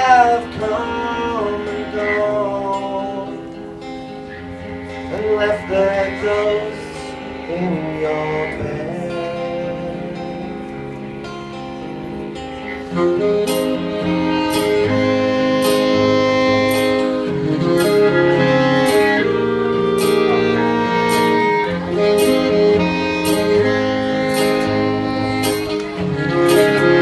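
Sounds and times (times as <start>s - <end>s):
live band playing: 0.0s - 27.0s.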